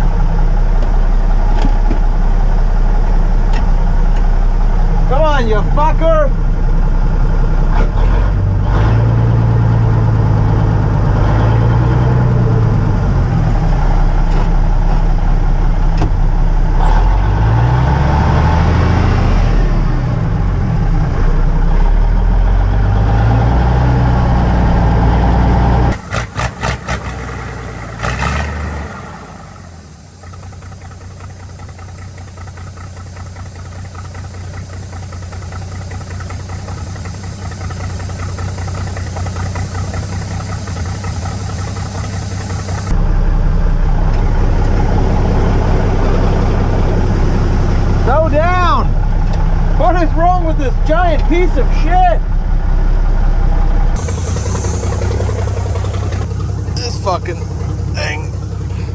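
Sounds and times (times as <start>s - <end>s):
diesel truck engine revving: 0.0s - 58.9s.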